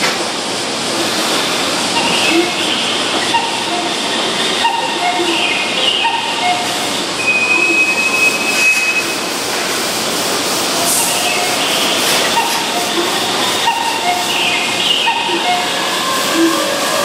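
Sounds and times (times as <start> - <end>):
train equipment hiss: 0.9 - 17.0
thin high tone: 4.9 - 9.3.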